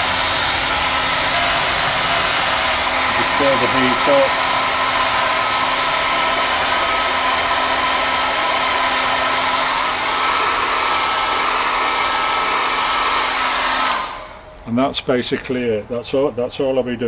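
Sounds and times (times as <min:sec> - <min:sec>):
hairdryer blowing: 0:00.0 - 0:14.6.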